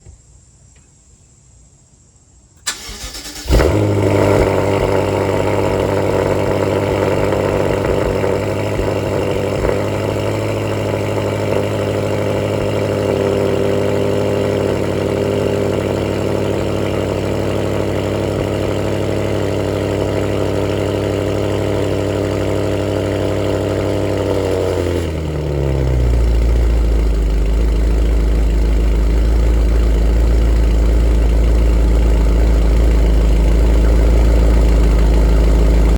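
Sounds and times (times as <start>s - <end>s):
starter motor cranking: 2.6s - 4.6s
car engine idling: 2.6s - 35.9s.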